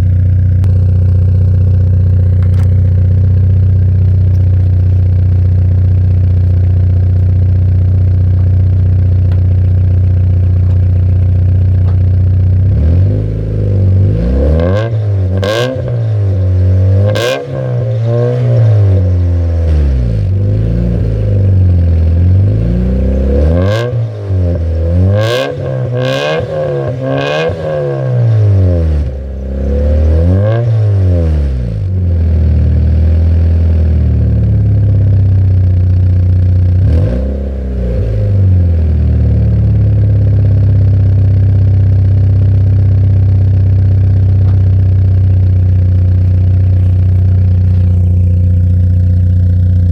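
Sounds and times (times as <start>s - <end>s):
exhaust pops: 0.0s - 12.8s, 37.8s - 49.9s
car engine idling and revving: 0.0s - 49.9s.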